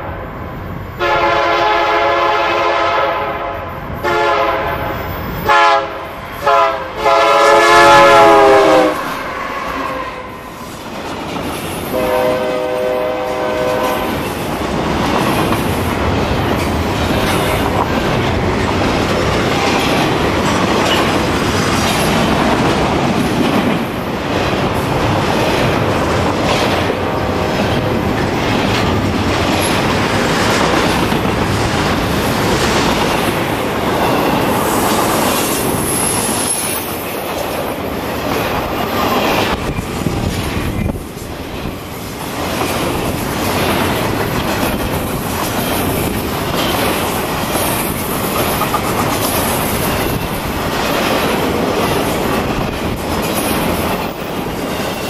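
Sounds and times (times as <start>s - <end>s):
freight train wheel rumble: 0.0s - 55.0s
locomotive air horn: 1.0s - 10.5s, 11.9s - 14.1s
rhythmic clickety-clack: 14.0s - 55.0s.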